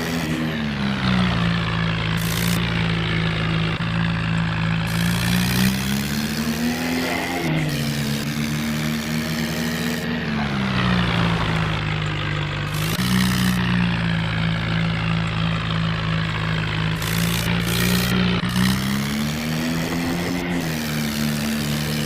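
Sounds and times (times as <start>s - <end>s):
toy tractor motor humming: 0.0s - 22.0s.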